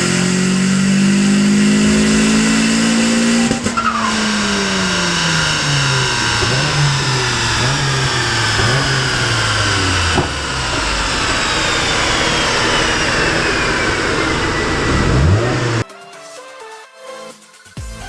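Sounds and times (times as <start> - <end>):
car engine revving: 0.0 - 15.8
turbo whistle falling: 1.8 - 15.8.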